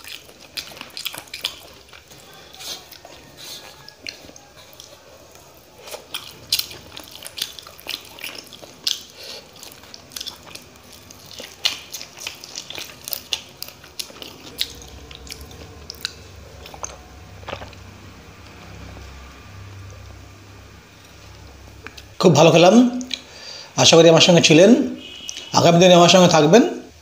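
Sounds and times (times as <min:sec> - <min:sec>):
man chewing with wet smacks: 0:00.0 - 0:20.1, 0:21.0 - 0:22.2.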